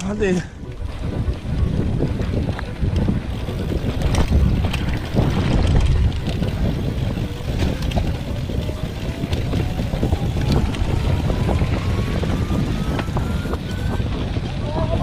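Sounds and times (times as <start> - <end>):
bike clicks and rattles: 0.0 - 15.0
wind rumbling on microphone: 0.0 - 15.0.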